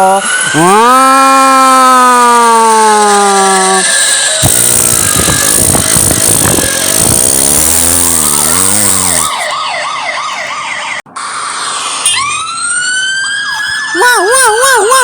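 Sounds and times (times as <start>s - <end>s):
cartoon engine noise: 0.0s - 15.0s
police siren warbling: 0.4s - 15.0s.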